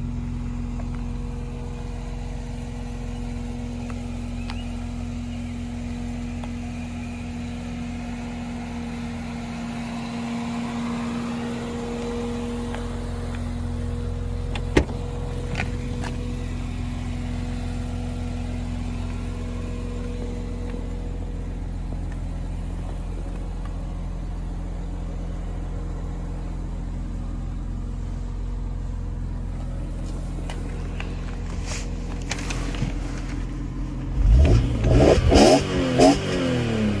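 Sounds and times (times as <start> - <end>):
car engine idling and revving: 0.0 - 37.0.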